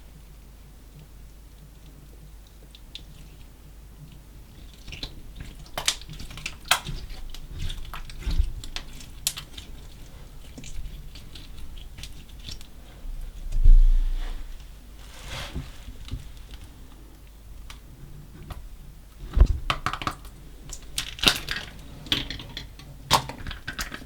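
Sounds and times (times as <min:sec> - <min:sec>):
sticky clicks and crackles: 0:04.6 - 0:12.7, 0:19.4 - 0:24.0
low thump: 0:13.5 - 0:14.6.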